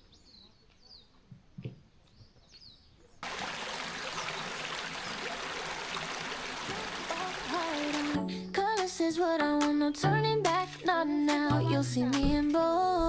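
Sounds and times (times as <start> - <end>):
flowing mountain stream: 3.2 - 8.2.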